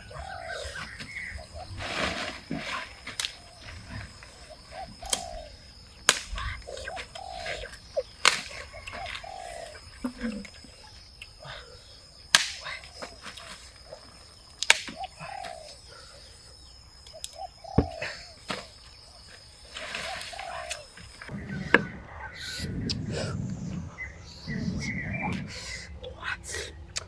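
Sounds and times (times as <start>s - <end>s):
short low bird calls: 2.5s - 11.0s, 20.0s - 27.0s.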